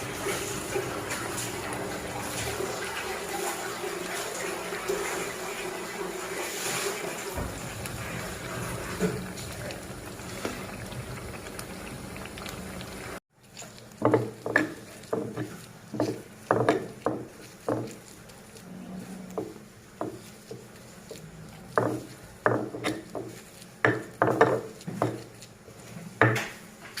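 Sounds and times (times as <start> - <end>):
pestle knocking in mortar: 14.0 - 18.0, 21.7 - 25.3.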